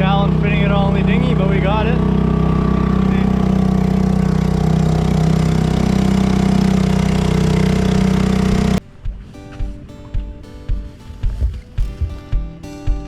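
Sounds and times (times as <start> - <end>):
outboard motor running: 0.0 - 8.8.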